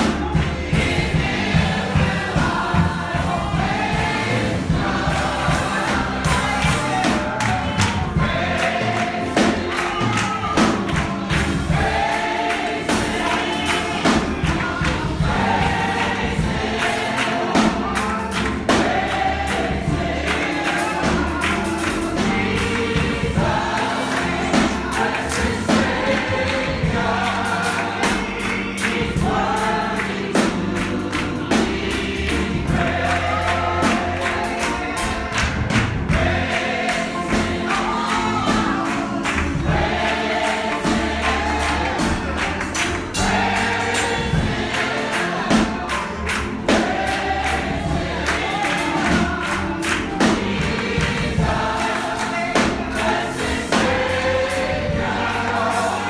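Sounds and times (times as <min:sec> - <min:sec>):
clapping beat: 0:00.0 - 0:56.0
congregation singing a gospel song: 0:00.0 - 0:56.0.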